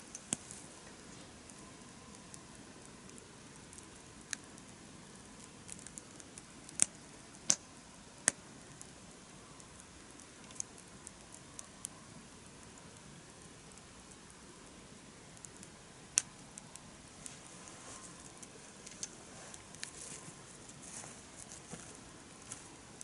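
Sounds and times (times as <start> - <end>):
campfire crackling: 0.0 - 23.0
sharp fire pops: 3.1 - 8.9.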